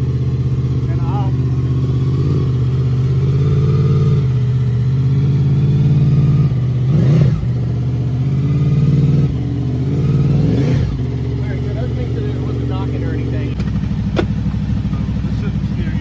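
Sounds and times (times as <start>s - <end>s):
motorcycle engine idling: 0.0s - 16.0s
motorcycle throttle blip: 13.5s - 15.3s.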